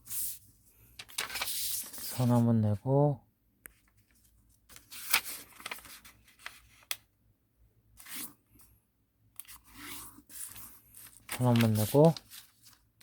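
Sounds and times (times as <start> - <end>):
paper swishing: 9.7 - 12.8.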